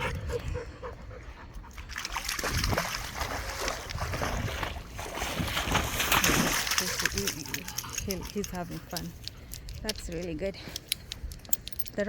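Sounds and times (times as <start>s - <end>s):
dog splashing through water: 1.8s - 8.8s
dog sounds: 6.7s - 9.1s.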